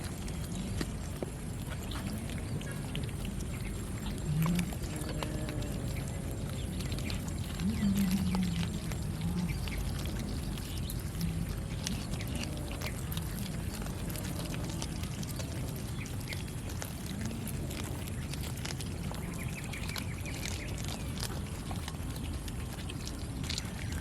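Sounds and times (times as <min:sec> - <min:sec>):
cats chewing and smacking: 0:00.0 - 0:24.0
low animal grumble: 0:04.1 - 0:15.4.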